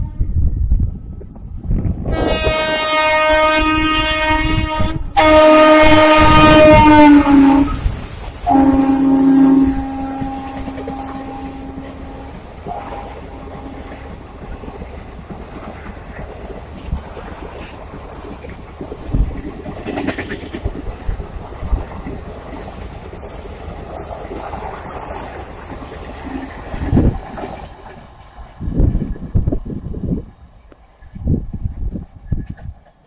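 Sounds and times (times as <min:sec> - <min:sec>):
train rumbling and clattering: 0:00.0 - 0:33.0
locomotive horn blasts: 0:02.1 - 0:07.8, 0:08.5 - 0:14.1.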